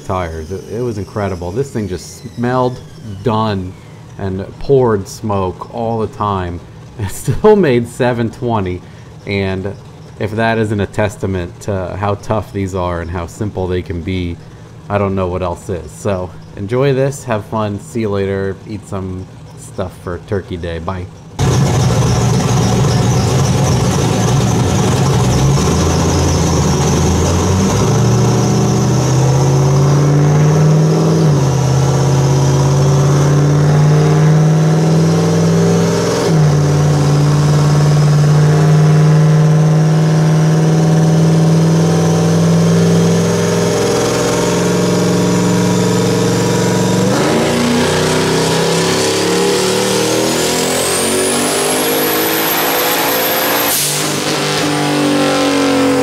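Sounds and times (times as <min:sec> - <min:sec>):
turbo whistle rising: 0:00.0 - 0:04.0
car engine running hard: 0:00.0 - 0:56.0.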